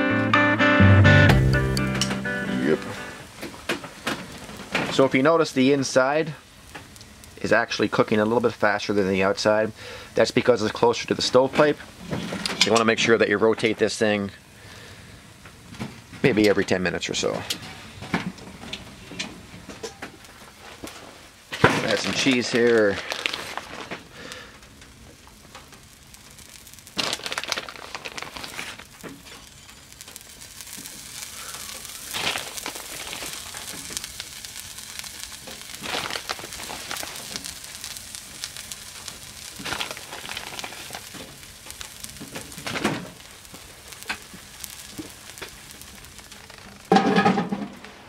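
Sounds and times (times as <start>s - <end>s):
faint steady sizzle: 1.2s - 48.0s
cheese rustling: 20.4s - 24.4s, 25.7s - 46.9s
cast iron lid clanking: 46.9s - 47.8s.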